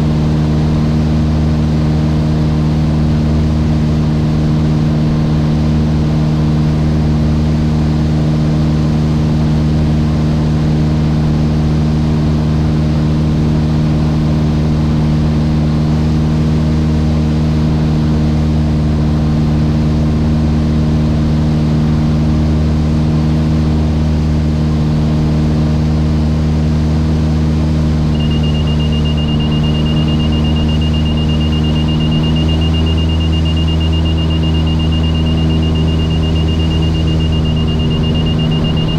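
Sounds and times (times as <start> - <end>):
aircraft engine and propeller drone: 0.0 - 38.9
high-pitched tone: 28.2 - 38.9.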